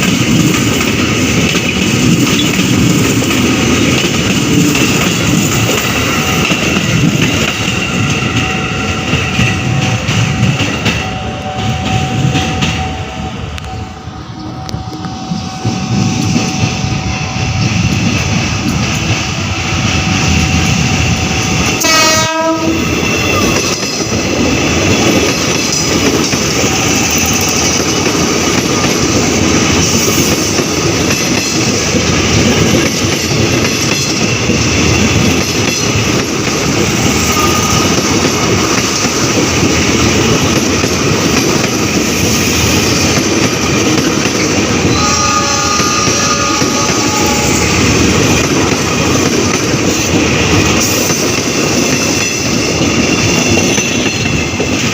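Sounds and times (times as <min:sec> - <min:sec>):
train rumble and wheel clatter: 0:00.0 - 0:54.9
train horn blast: 0:21.8 - 0:23.1, 0:44.8 - 0:48.0.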